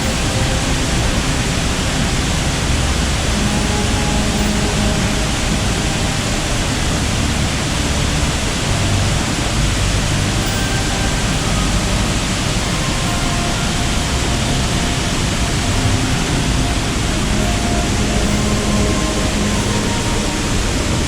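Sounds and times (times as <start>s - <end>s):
waterfall crashing: 0.0s - 21.0s.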